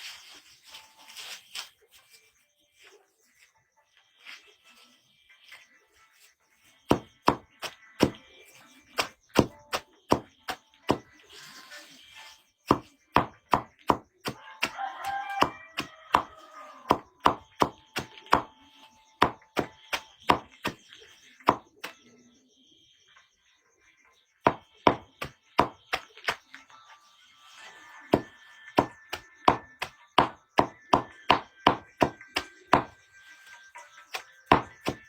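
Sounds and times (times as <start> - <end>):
blade chopping: 6.9 - 8.2, 8.9 - 11.5, 12.7 - 18.6, 19.2 - 22.0, 24.5 - 26.4, 28.1 - 33.0, 34.1 - 35.0.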